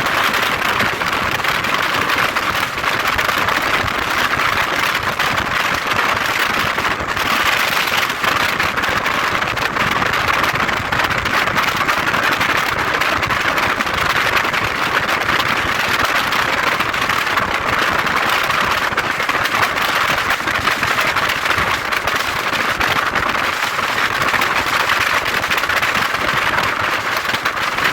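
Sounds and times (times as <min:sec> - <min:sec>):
wind and road noise on microphone: 0:00.0 - 0:24.1.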